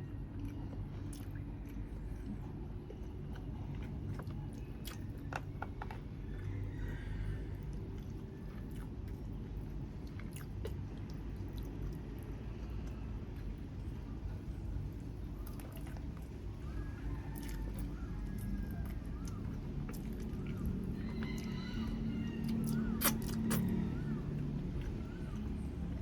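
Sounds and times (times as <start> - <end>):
chewing and biting food: 0.0 - 26.0
wet mouth clicks: 22.6 - 23.8.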